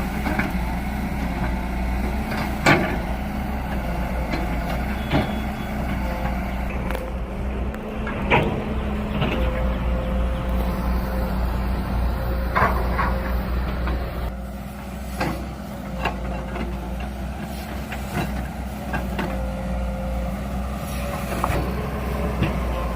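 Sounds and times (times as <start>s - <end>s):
diesel machinery droning: 0.0s - 22.9s
metallic clanks and knocks: 2.3s - 3.1s, 8.0s - 9.7s.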